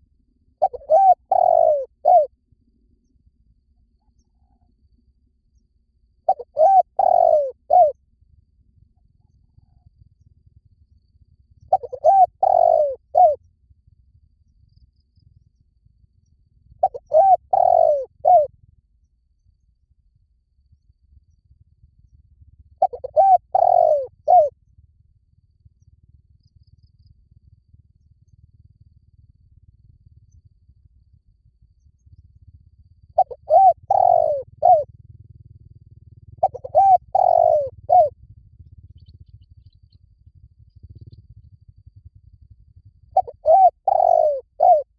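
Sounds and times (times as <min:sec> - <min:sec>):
dove cooing: 0:00.6 - 0:02.3, 0:06.3 - 0:08.0, 0:11.7 - 0:13.4, 0:16.8 - 0:18.5, 0:22.8 - 0:24.5, 0:33.2 - 0:34.9, 0:36.4 - 0:38.2, 0:43.1 - 0:44.9.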